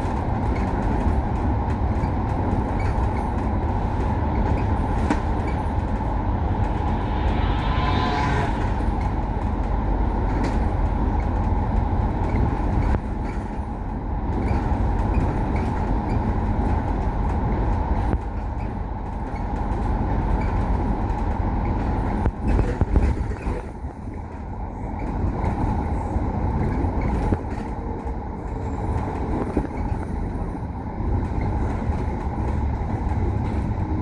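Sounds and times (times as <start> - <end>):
bus engine and road rumble: 0.0 - 34.0.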